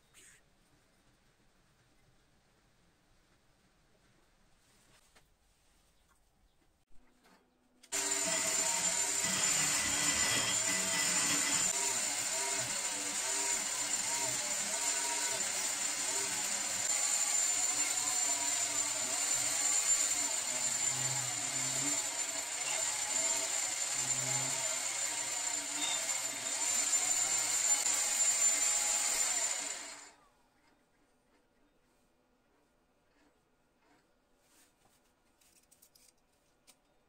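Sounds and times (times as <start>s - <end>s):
power tool whining: 7.9s - 30.2s.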